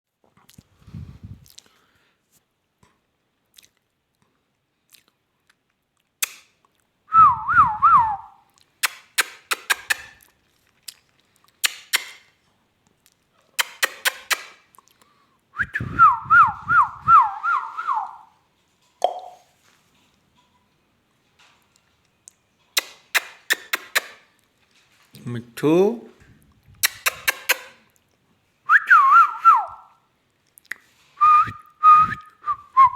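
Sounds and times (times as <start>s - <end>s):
sharp clicks: 8.8s - 10.2s.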